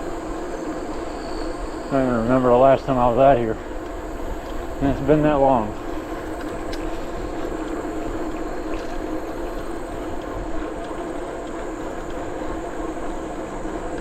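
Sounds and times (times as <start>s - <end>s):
bicycle tyres rolling: 0.0s - 14.0s
wind on microphone: 0.0s - 14.0s.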